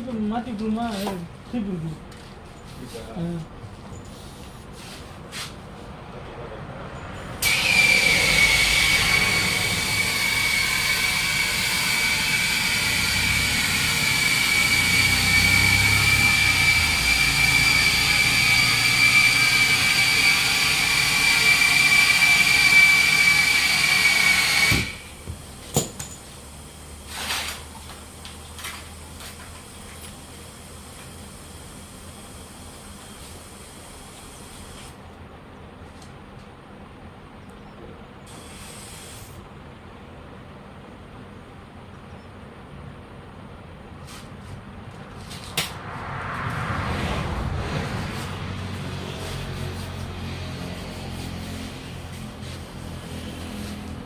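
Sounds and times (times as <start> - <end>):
compressed air hissing: 38.3 - 39.4.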